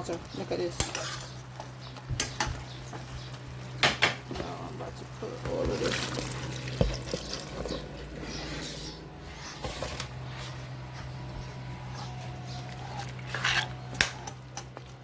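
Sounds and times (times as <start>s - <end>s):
steady low hum: 0.0s - 15.0s
food scraping into cooking pot: 12.7s - 14.4s.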